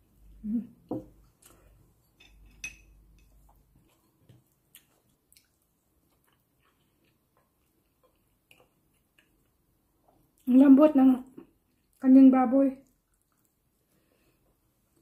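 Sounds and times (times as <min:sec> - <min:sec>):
faint chewing: 0:01.1 - 0:10.5, 0:12.8 - 0:15.0.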